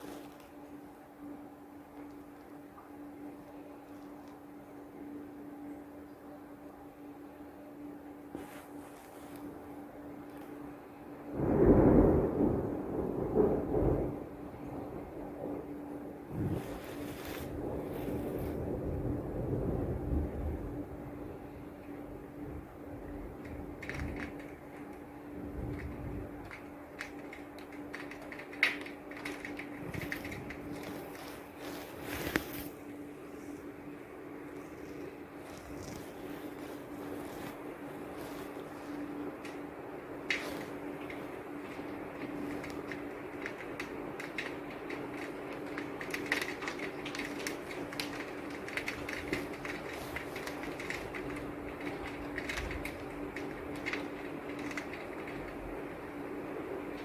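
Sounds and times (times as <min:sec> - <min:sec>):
faint hum: 0:00.0 - 0:57.0
rain patter: 0:00.0 - 0:57.0.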